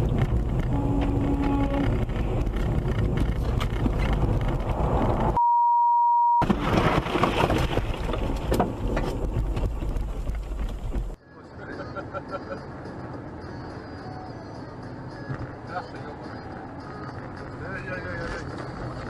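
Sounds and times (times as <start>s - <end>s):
car road and engine noise: 0.0s - 5.4s, 7.6s - 19.0s
censor bleep: 5.4s - 6.4s.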